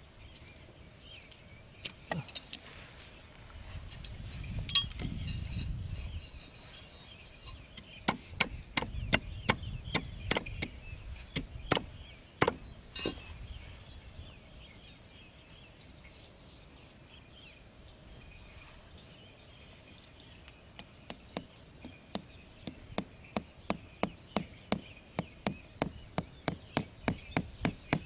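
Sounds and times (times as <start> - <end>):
birds or insects chirping: 0.0 - 28.0
sharp wooden knocks: 8.0 - 10.8, 11.4 - 12.6.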